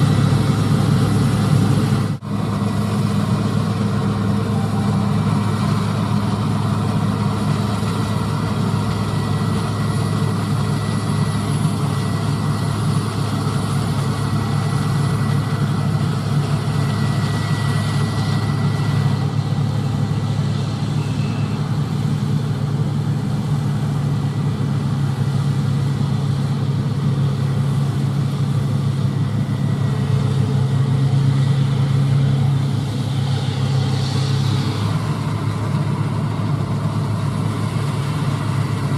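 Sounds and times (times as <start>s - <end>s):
faint high whine: 0.0s - 25.9s
diesel engine deep drone: 0.0s - 38.9s.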